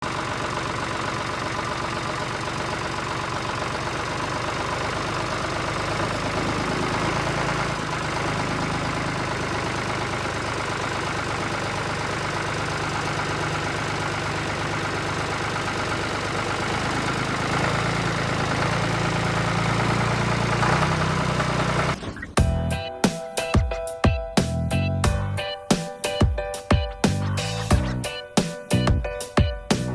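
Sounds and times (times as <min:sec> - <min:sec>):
engine idling with low chug: 0:00.0 - 0:22.8
music with sharp beats: 0:22.4 - 0:29.9.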